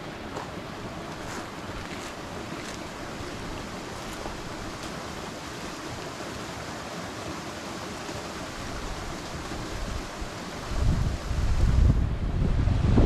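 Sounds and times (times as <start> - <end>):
strong wind buffeting microphone: 8.7 - 13.0.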